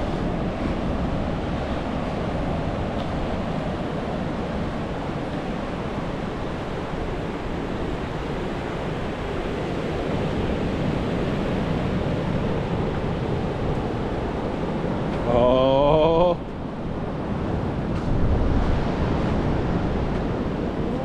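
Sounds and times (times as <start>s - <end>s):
wind and surf rushing: 0.0s - 21.0s
wind buffeting microphone: 16.5s - 21.0s.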